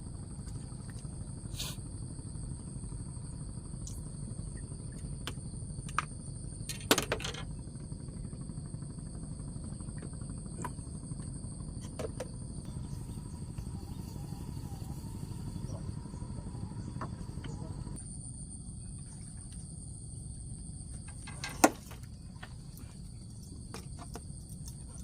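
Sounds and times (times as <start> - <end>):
insects trilling: 0.0 - 25.0
low rumble: 12.6 - 18.0.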